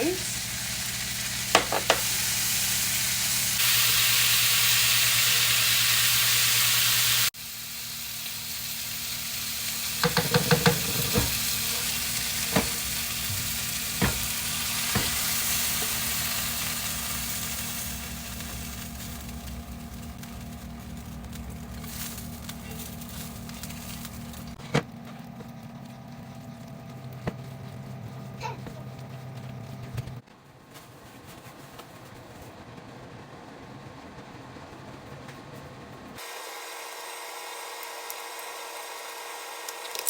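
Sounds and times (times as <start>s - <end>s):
vegetables sizzling in a pan: 0.0s - 24.6s, 36.2s - 40.0s.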